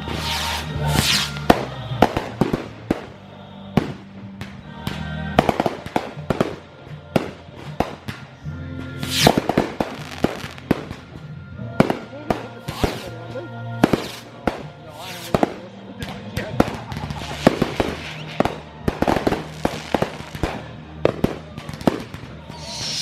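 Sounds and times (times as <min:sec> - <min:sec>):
loud rushing hiss: 0:00.0 - 0:01.7, 0:14.9 - 0:15.4, 0:22.5 - 0:23.0
fireworks bursting: 0:00.0 - 0:23.0
music: 0:00.0 - 0:23.0.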